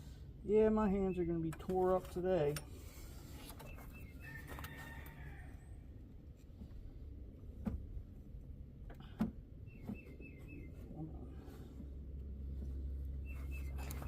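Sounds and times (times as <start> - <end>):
low steady rumble: 0.0 - 14.0
bird chirping: 3.6 - 4.4, 9.6 - 11.1, 13.2 - 14.0.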